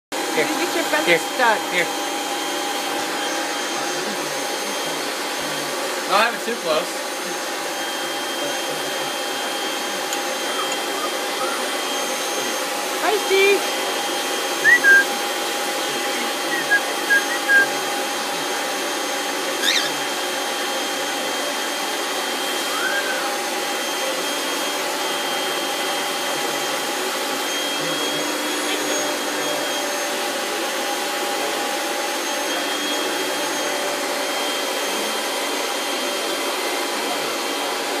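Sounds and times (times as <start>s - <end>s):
hair dryer blowing: 0.2s - 38.0s
bird chirps and whistles: 14.6s - 15.2s, 16.5s - 17.7s, 19.6s - 20.0s, 22.7s - 23.2s.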